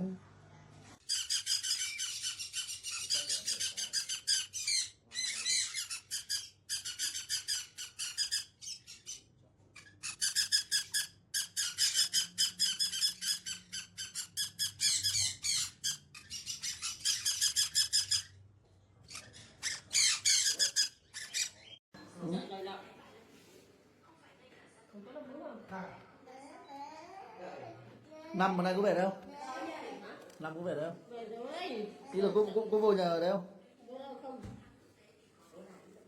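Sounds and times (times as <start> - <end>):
parrot squawking: 1.0 - 18.3, 19.1 - 21.8.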